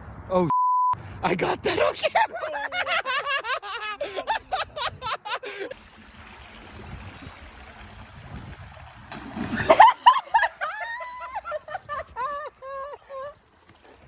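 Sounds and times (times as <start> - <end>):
water splashing and running: 5.7 - 14.0
loud splash: 5.8 - 10.1.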